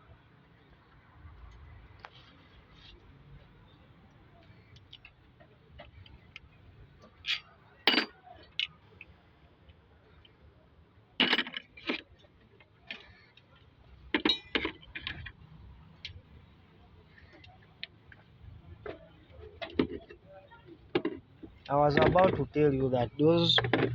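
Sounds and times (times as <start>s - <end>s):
metal tools clanking: 7.2s - 8.7s, 11.2s - 12.1s, 14.2s - 15.4s.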